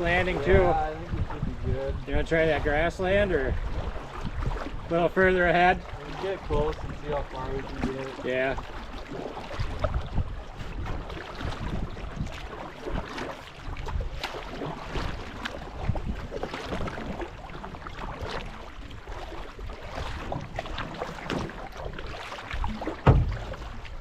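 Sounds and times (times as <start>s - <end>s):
paddle strokes splashing: 0.0s - 24.0s
water noise: 0.0s - 24.0s
wind buffeting microphone: 0.0s - 24.0s.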